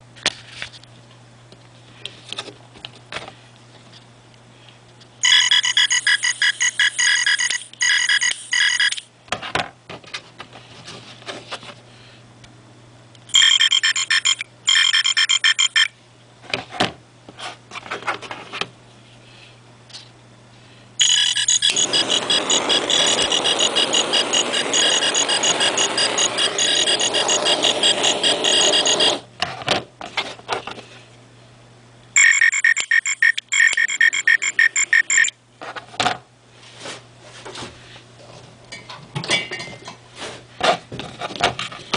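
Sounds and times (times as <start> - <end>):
pulsing electronic ringing tone: 5.2 - 9.0, 13.3 - 15.9, 21.0 - 29.2, 32.2 - 35.3.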